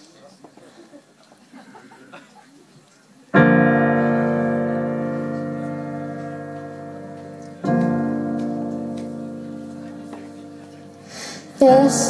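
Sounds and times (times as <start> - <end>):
piano chords ringing: 3.4 - 12.0.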